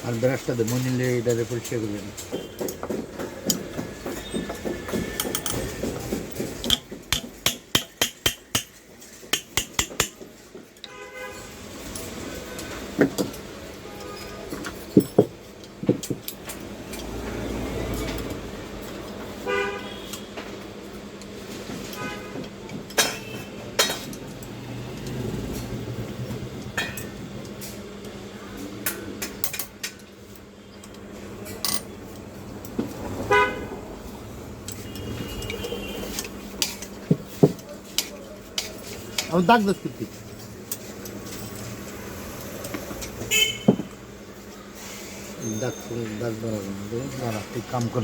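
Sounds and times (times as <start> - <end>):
metal clinks and knocks: 2.1 - 10.3, 14.6 - 16.6.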